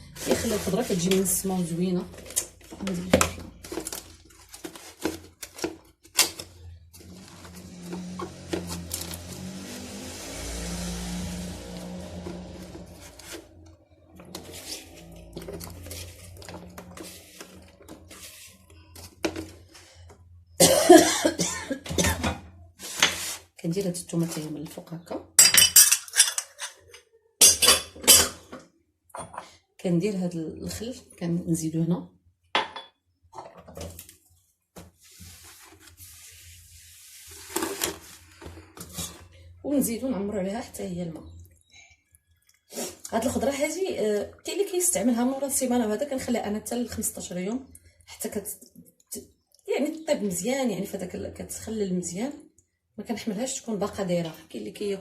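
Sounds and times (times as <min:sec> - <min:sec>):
loud sudden noise: 0:07.7 - 0:13.6.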